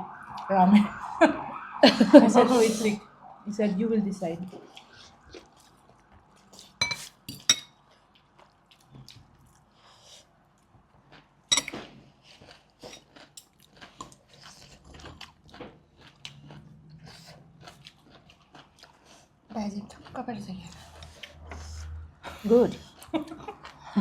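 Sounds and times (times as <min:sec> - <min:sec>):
soft chewing: 0:04.4 - 0:24.0
cutlery clinking on dishes: 0:06.8 - 0:07.7, 0:11.5 - 0:11.9.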